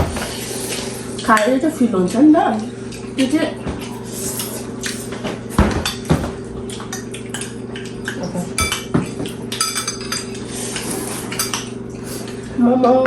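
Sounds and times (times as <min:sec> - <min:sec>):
cutlery clinking against plates: 0:05.6 - 0:12.3.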